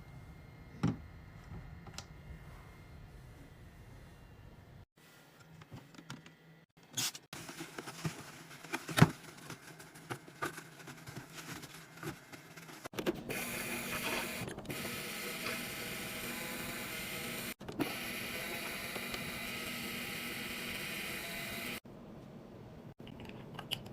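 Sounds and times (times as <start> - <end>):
rustling of handled items: 7.3 - 13.2.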